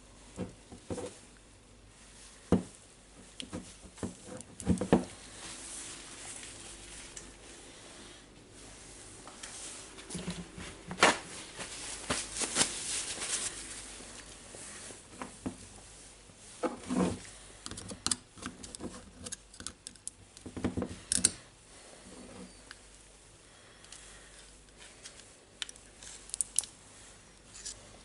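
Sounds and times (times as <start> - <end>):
tool parts clicking and knocking: 17.6 - 21.4.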